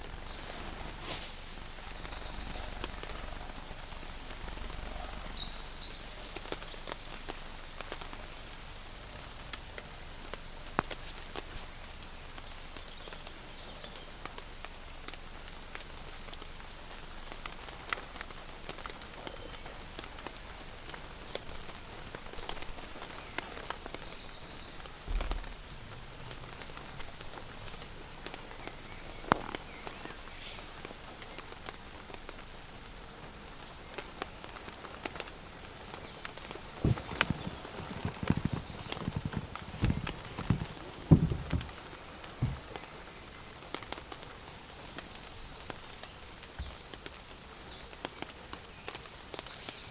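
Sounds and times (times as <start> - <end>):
steady rain falling: 0.0 - 49.9
dull low thump: 36.8 - 42.7.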